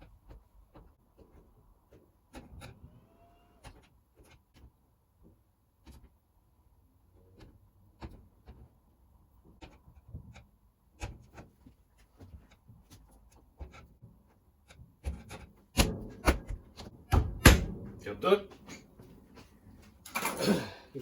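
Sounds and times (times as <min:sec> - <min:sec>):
parts tapping and clicking: 0:00.0 - 0:02.8, 0:07.2 - 0:17.7.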